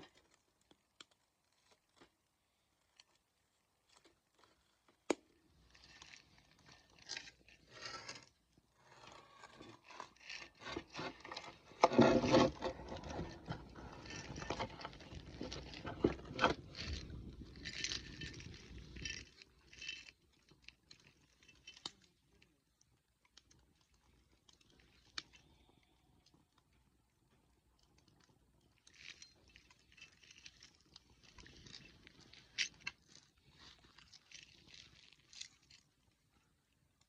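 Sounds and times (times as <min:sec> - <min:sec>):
wood scraping and crunching: 0:05.7 - 0:20.0.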